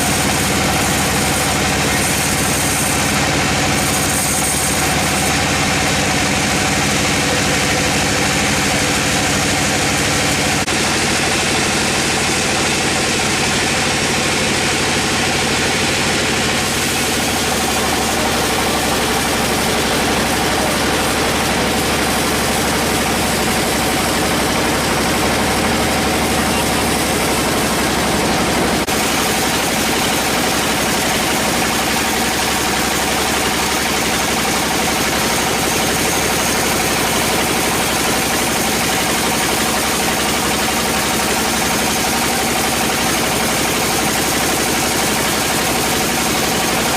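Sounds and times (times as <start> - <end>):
sawmill machinery droning: 0.0 - 46.9.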